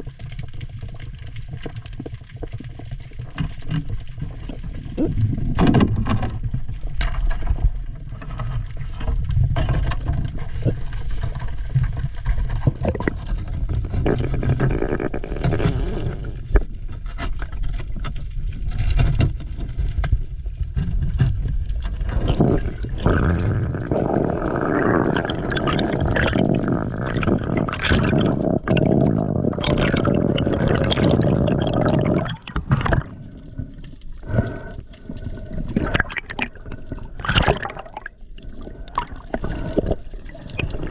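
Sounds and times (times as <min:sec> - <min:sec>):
water sloshing and gurgling: 0:00.0 - 0:40.9
bubbling water rush: 0:21.8 - 0:40.9.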